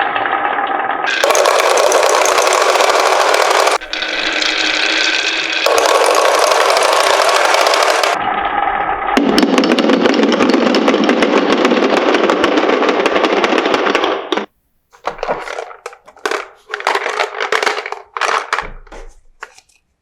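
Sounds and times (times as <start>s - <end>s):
marbles rattling down a track: 1.1s - 8.2s, 15.0s - 18.6s.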